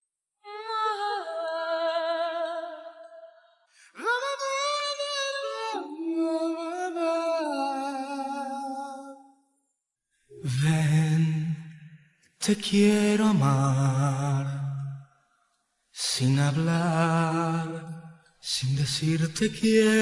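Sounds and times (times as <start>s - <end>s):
wordless singing with vibrato: 0.4s - 9.4s, 10.3s - 15.2s, 15.8s - 20.0s.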